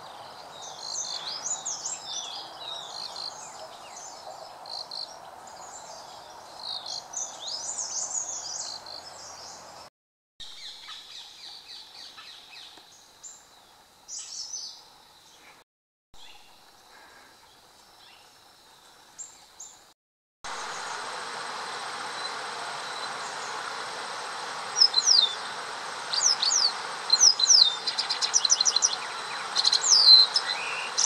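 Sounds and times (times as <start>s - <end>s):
sharp high bird calls: 26.1s - 31.0s.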